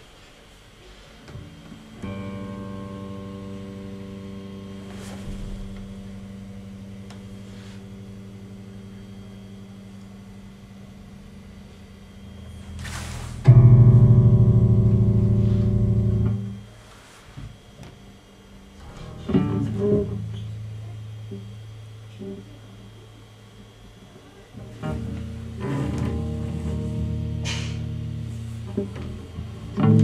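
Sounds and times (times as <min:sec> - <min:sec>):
electric bass notes: 0:01.2 - 0:16.8, 0:17.5 - 0:23.0, 0:24.5 - 0:30.0.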